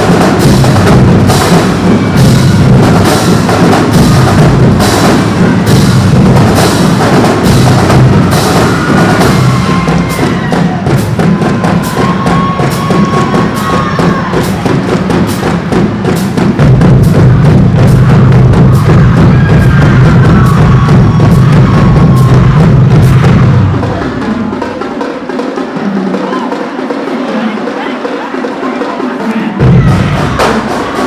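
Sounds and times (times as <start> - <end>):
drumline bass drums and snares: 0.0 - 26.9, 29.2 - 31.0.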